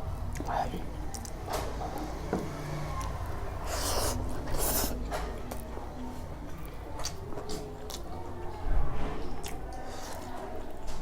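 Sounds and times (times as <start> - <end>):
nose sniffs: 3.6 - 5.0
person eating: 3.6 - 5.0.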